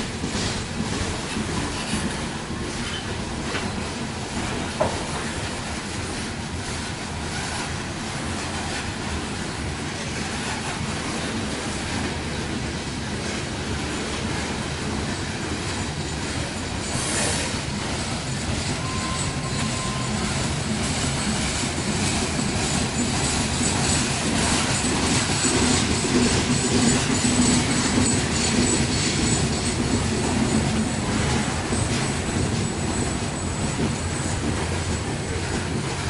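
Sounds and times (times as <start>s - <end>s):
faint wheel squeal: 2.8s - 3.2s, 15.9s - 29.7s.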